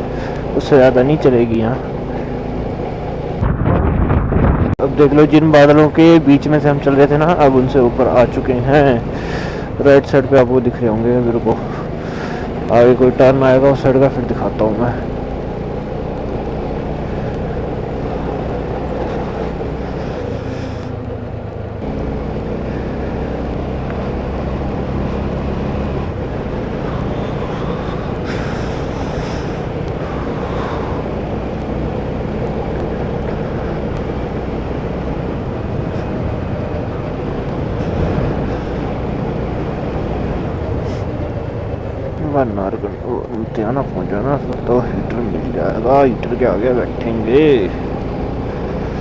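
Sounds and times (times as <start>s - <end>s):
motorcycle engine running: 0.0s - 49.0s
wind rushing over microphone: 2.7s - 7.7s.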